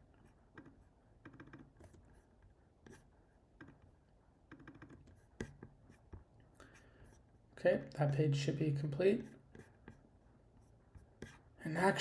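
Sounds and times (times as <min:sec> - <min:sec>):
mouse and keyboard clicks: 0:00.6 - 0:01.9, 0:04.5 - 0:05.0.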